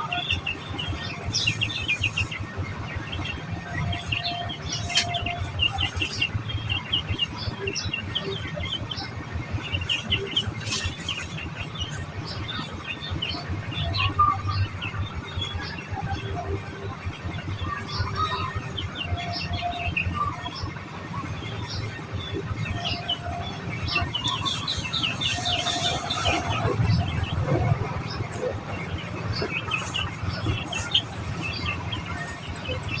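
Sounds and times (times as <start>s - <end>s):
finches chirping: 9.6s - 33.0s.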